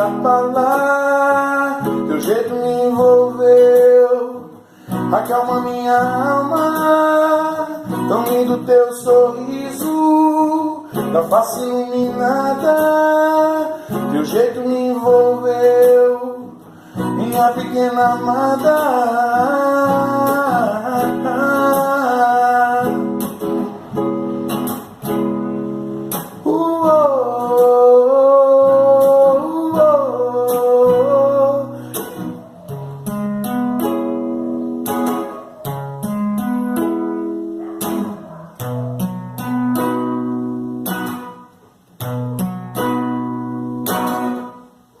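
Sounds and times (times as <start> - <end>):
wordless singing: 0.0 - 23.7, 26.4 - 32.7
acoustic guitar picking chords: 0.0 - 45.0.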